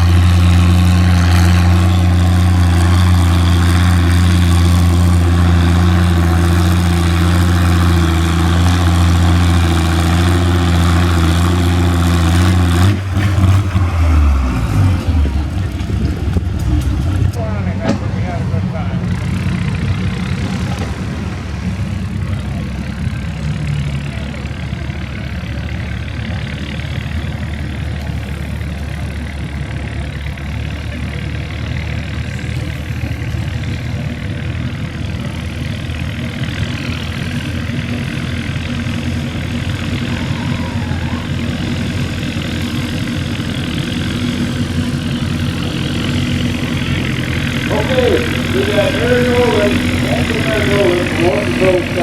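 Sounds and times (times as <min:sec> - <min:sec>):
tractor engine idling: 0:00.0 - 0:52.0.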